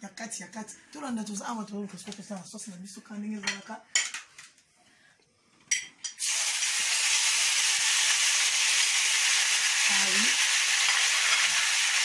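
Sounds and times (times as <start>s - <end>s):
hot oil sizzling: 6.1s - 12.0s.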